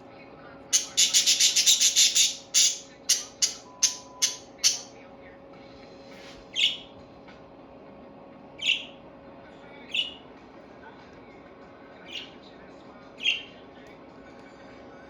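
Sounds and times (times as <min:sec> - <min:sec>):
budgerigars chirping: 0:00.8 - 0:04.9, 0:06.5 - 0:06.9, 0:08.6 - 0:09.0, 0:09.9 - 0:10.2, 0:12.1 - 0:12.4, 0:13.2 - 0:13.5.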